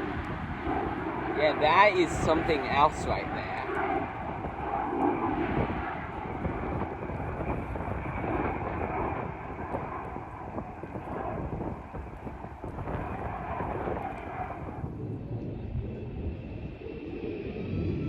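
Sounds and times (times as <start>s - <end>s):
aircraft engine rumble: 0.0s - 18.0s.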